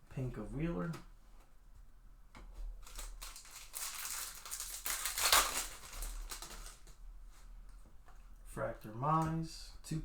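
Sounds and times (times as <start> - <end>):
foil wrapper crinkling: 2.8 - 7.0.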